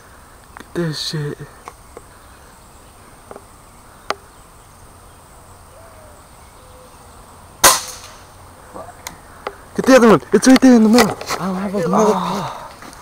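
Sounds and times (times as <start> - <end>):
faint background hiss: 0.0 - 13.0
air gun shot: 7.6 - 8.3.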